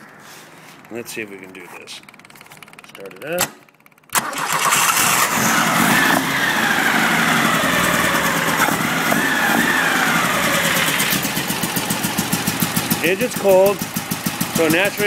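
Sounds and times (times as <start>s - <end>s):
cold engine running roughly: 3.8s - 15.0s.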